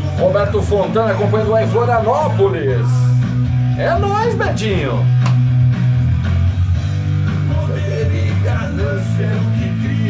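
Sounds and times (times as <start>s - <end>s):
rock song with singer: 0.0s - 10.0s.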